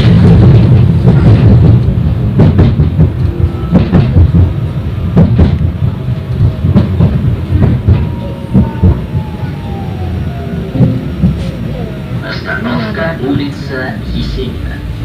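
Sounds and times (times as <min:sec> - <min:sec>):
wheels clacking on rail joints: 0:00.0 - 0:09.9
tram rumble: 0:00.0 - 0:15.0.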